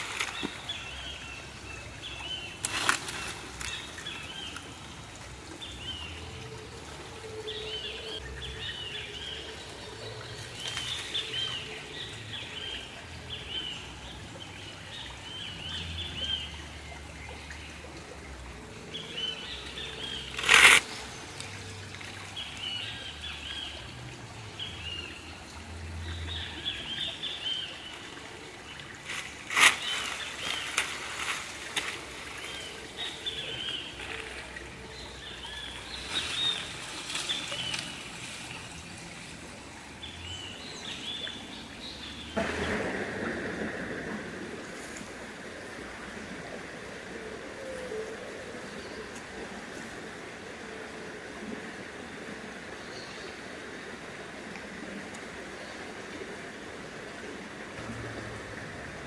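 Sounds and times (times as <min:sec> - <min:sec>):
faint creek trickle: 0:00.0 - 0:59.0
birds chirping: 0:28.7 - 0:43.7
sharp crack: 0:42.4 - 0:44.8.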